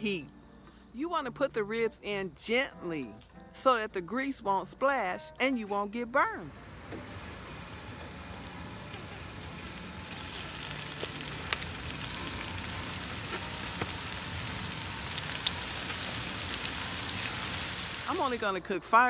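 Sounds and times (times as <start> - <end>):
meat sizzling in hot oil: 6.5 - 18.5.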